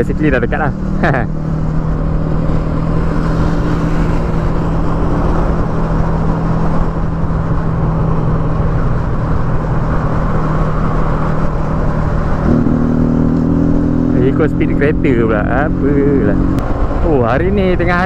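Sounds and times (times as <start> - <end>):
motorcycle engine cruising: 0.0 - 18.0
wind rush on microphone: 1.3 - 14.0.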